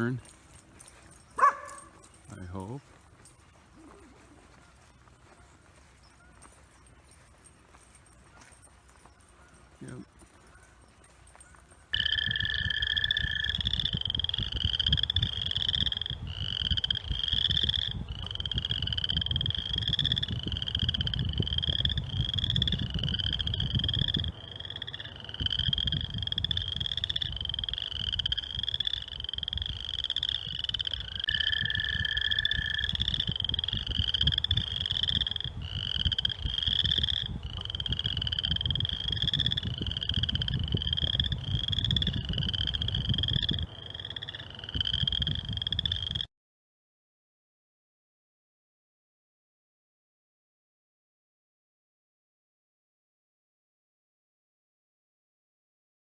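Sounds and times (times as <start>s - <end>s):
frogs calling: 10.5s - 46.3s.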